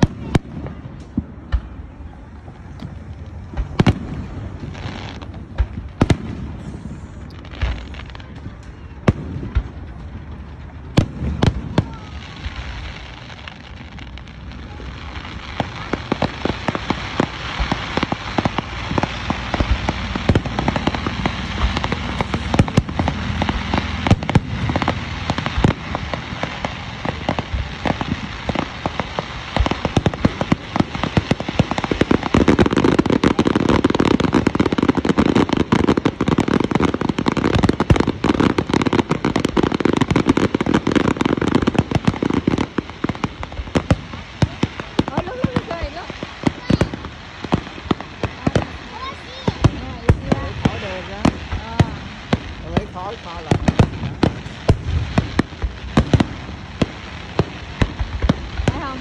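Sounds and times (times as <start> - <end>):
fireworks crackling: 0.0 - 59.0
firework shells bursting: 15.6 - 59.0.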